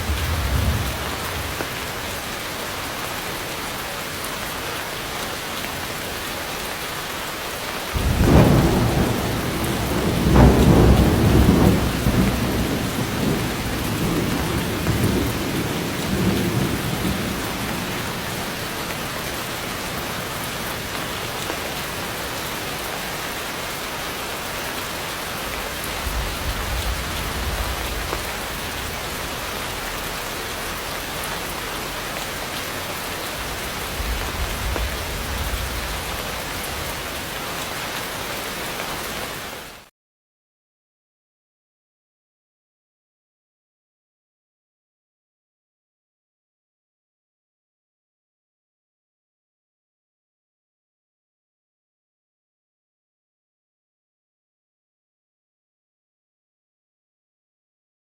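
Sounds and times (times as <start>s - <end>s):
thunder rumbling: 0.0s - 2.3s, 8.0s - 22.1s, 25.5s - 31.1s, 32.3s - 37.4s
heavy rain: 0.0s - 39.9s.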